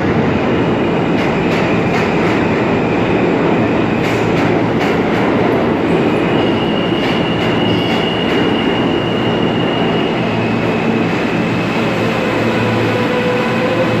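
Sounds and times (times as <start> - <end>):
train wheels rumbling on rail: 0.0 - 14.0
high wheel squeal: 6.3 - 11.0.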